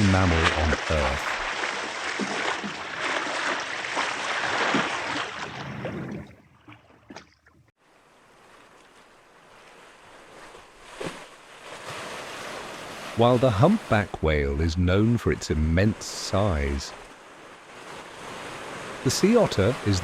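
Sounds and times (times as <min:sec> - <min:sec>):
ocean water rushing and splashing: 0:00.0 - 0:07.2, 0:07.8 - 0:20.0
faint sea noise: 0:00.0 - 0:20.0.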